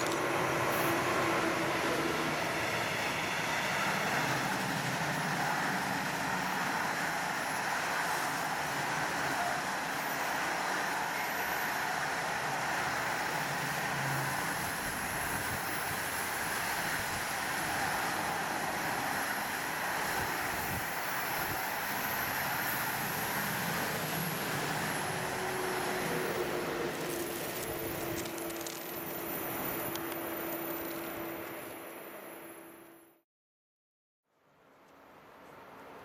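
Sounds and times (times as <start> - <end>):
freight train wheels on rails: 0.0 - 32.4.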